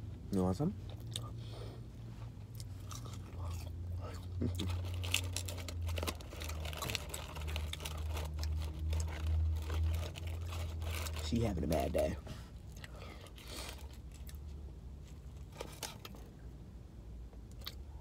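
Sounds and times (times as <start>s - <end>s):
person chewing fries: 0.9s - 1.4s, 2.3s - 11.8s, 12.6s - 16.3s, 17.4s - 18.0s.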